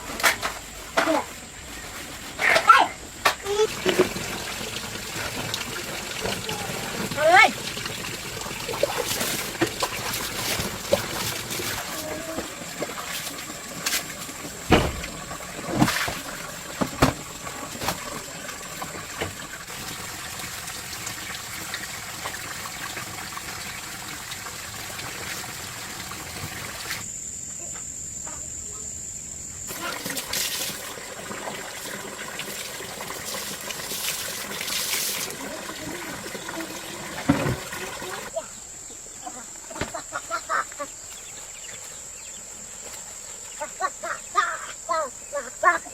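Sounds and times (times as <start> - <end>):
rain: 3.5 - 9.7
water trickling and dripping: 3.5 - 27.0, 29.7 - 38.4
sharp knocks: 14.7 - 15.2.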